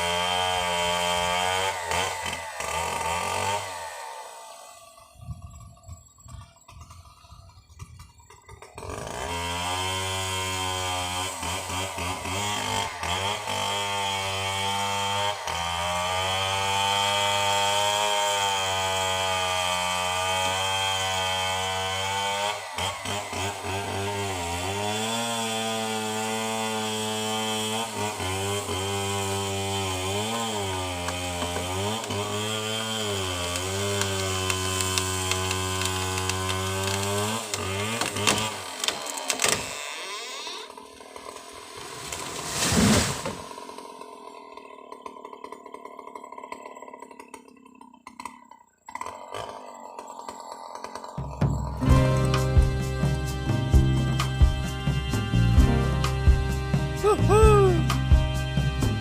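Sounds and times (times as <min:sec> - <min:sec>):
chainsaw engine cutting: 0:00.0 - 0:59.0.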